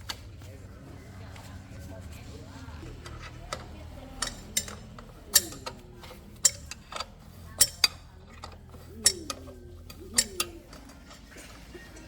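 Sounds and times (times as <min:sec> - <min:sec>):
hand tools clinking on metal: 0:02.8 - 0:12.0.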